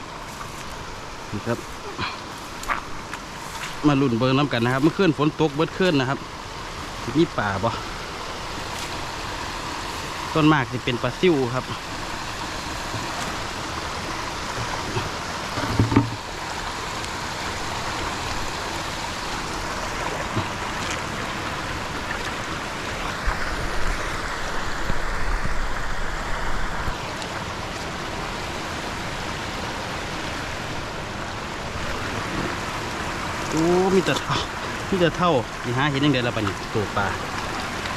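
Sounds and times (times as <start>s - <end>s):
running water rushing: 0.0s - 37.9s
thump: 15.6s - 16.2s.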